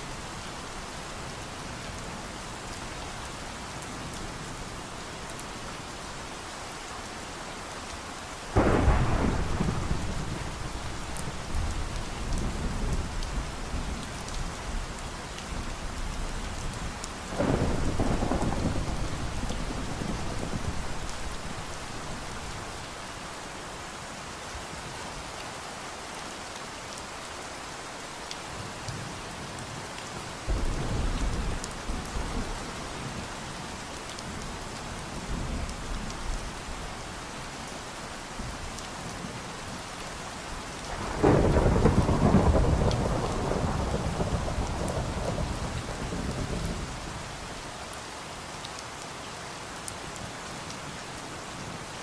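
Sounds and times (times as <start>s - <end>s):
steady rain: 0.0s - 52.0s
rolling thunder: 8.6s - 14.0s, 17.3s - 22.8s, 30.5s - 32.6s, 40.9s - 47.0s.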